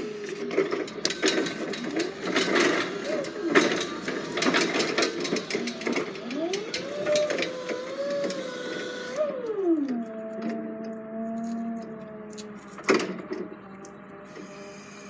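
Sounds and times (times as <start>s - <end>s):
motor whine: 0.0s - 15.0s
mechanical clicking and clattering: 0.4s - 8.5s.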